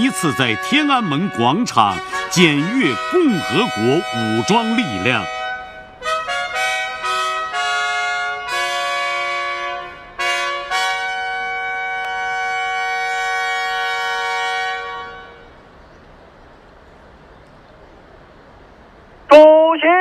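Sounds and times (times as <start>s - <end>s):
brass fanfare on trumpets: 0.0s - 15.5s.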